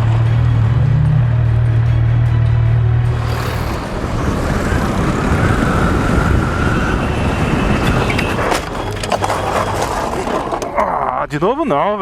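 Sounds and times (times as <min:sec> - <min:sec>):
wind and road rumble: 0:02.8 - 0:10.9
faint high whine: 0:03.1 - 0:08.5.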